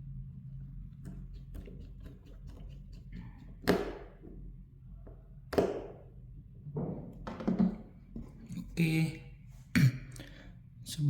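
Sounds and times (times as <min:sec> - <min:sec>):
hard objects knocking on work surface: 0:06.8 - 0:07.8.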